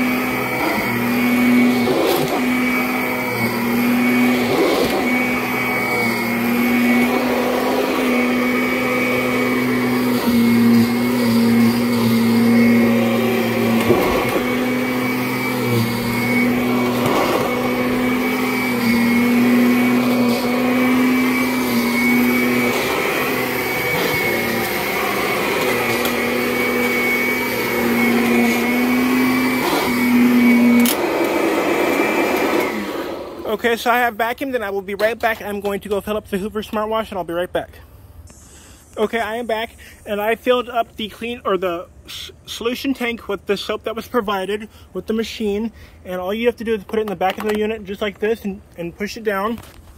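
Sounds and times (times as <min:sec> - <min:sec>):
vacuum cleaner motor hum: 0:00.0 - 0:33.6.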